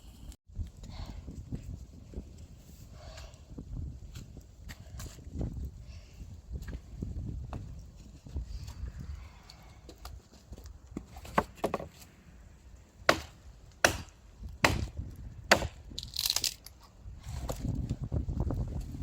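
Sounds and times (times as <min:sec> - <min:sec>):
axe chopping wood: 0:13.1 - 0:16.0.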